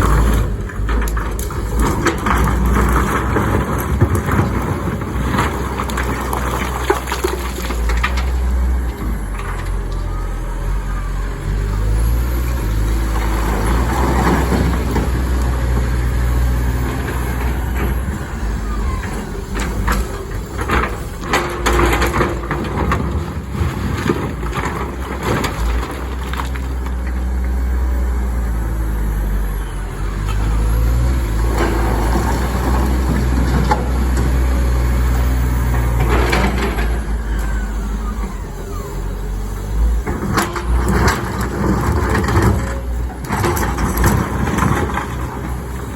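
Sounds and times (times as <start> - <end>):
rock scraping and clattering: 0.0 - 10.0, 19.3 - 27.2, 40.0 - 45.9
excavator diesel engine under load: 0.0 - 45.9
hydraulics working: 0.0 - 45.9.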